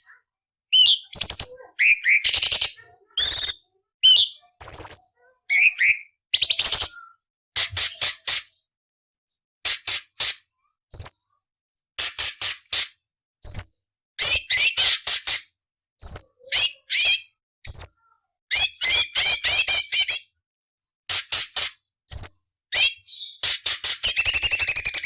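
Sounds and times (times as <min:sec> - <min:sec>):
bird calling with harsh rasps: 0:00.7 - 0:08.6
bird upward-sweeping whistles: 0:24.1 - 0:25.0.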